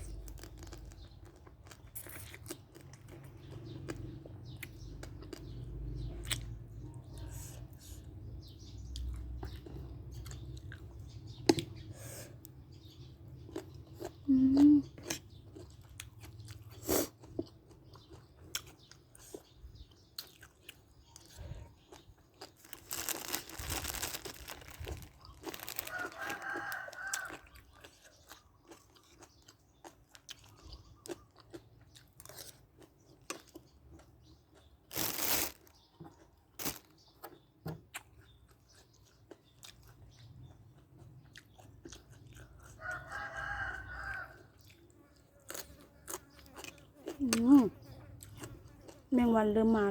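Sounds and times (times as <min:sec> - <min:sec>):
chewing crunchy food: 0:00.0 - 0:49.9
rooster crowing: 0:25.8 - 0:27.5, 0:42.8 - 0:44.5.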